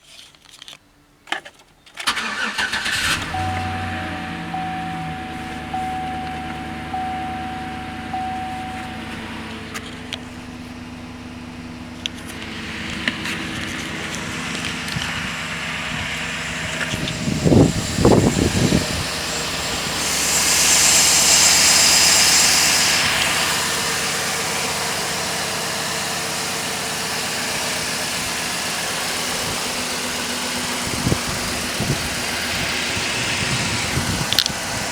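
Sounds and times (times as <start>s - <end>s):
car engine cranking and starting: 1.9s - 34.9s
car engine idling: 2.1s - 34.9s
engine throttle blips: 2.1s - 34.9s
steady chime tone: 3.2s - 9.7s
hiss: 16.5s - 34.9s.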